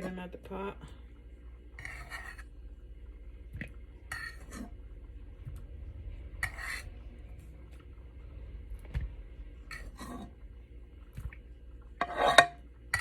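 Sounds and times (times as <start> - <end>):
fork scraping cooking pot: 1.8 - 2.5, 4.1 - 4.7, 6.4 - 6.9, 9.7 - 10.4, 12.0 - 13.0.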